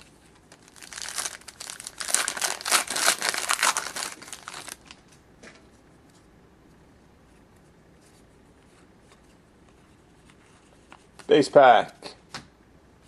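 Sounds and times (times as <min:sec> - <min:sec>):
foil wrapper crinkling and tearing: 0:00.4 - 0:05.0.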